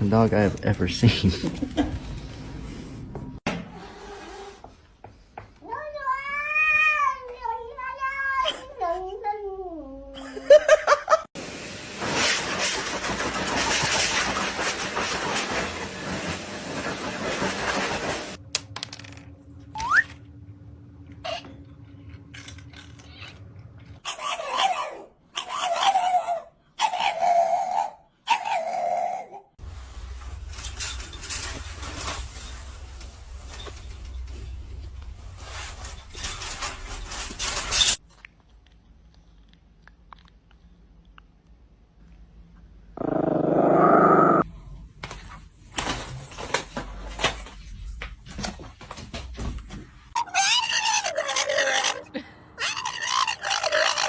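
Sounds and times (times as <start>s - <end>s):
animal rough cry: 43.0s - 44.4s, 50.2s - 54.0s.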